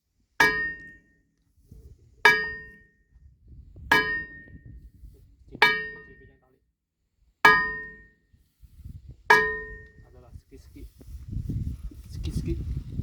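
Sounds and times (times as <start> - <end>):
hammer clanging on steel: 0.4 - 1.1, 2.3 - 2.9, 3.9 - 4.6, 5.6 - 6.3, 7.5 - 8.1, 9.3 - 10.0.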